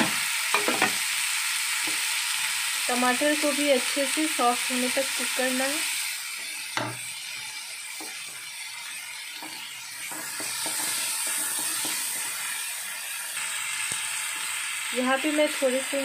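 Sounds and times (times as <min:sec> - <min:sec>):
vegetables sizzling in hot oil: 0:00.0 - 0:16.0
wooden spatula scraping a pan: 0:09.4 - 0:12.4.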